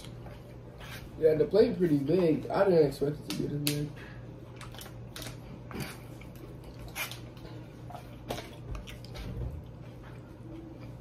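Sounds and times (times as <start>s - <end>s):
faint low hum: 0.0s - 11.0s
chewing and mouth noises: 4.4s - 11.0s.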